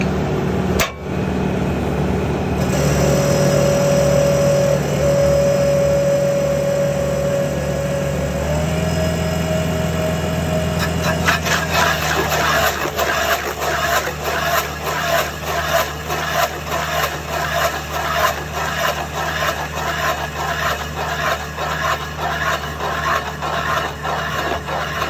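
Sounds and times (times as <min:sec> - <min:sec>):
machine engine whining: 0:00.0 - 0:25.0
wood being shredded: 0:10.7 - 0:25.0.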